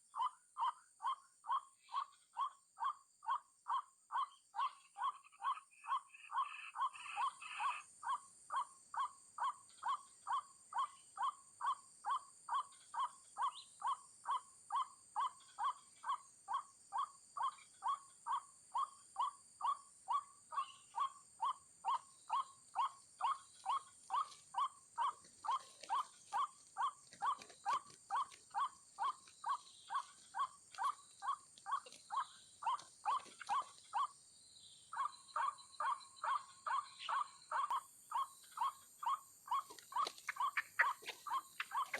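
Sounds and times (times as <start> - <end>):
waterhen calling: 35.0 - 41.9.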